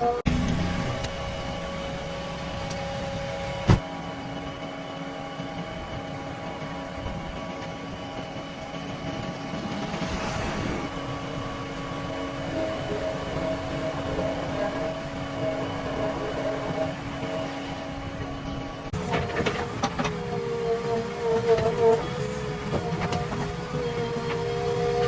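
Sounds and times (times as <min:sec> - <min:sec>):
diesel engine running: 0:00.0 - 0:25.0
steady whine: 0:00.0 - 0:25.0.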